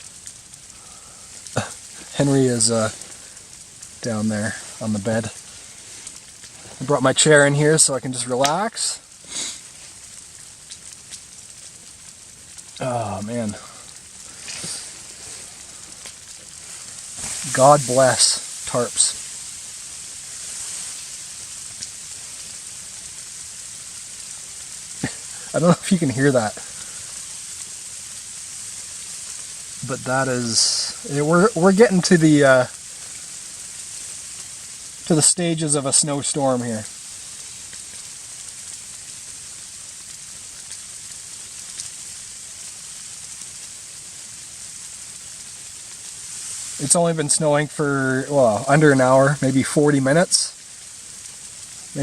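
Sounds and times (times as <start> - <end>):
snow falling on tarp: 0.0 - 52.0.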